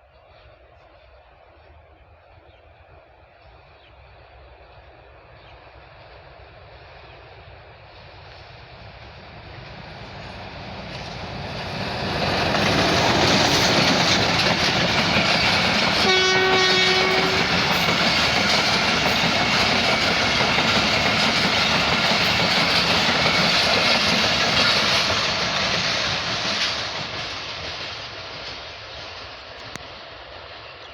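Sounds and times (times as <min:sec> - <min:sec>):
train running past: 0:00.0 - 0:30.9
train horn blast: 0:16.0 - 0:17.8.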